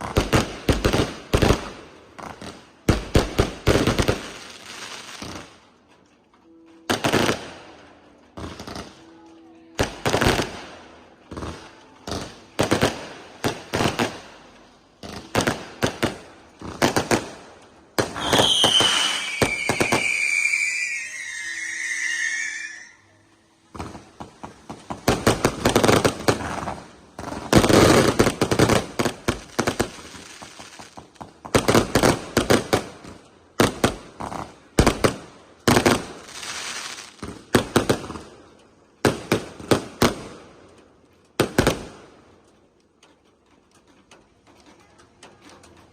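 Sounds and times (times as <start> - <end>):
fireworks bangs and crackles: 0.0 - 45.9
shrill whistles sliding down: 18.2 - 23.2.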